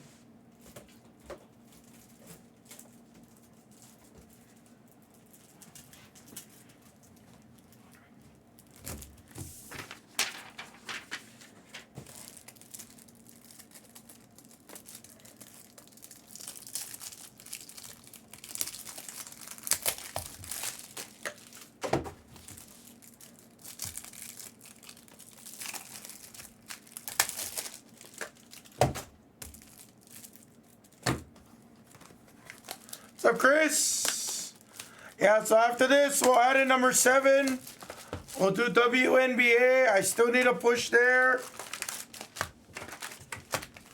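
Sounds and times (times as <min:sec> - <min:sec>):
plastic packaging crinkling and tearing: 0:01.6 - 0:07.8, 0:08.5 - 0:28.8, 0:29.4 - 0:31.0, 0:31.8 - 0:43.9.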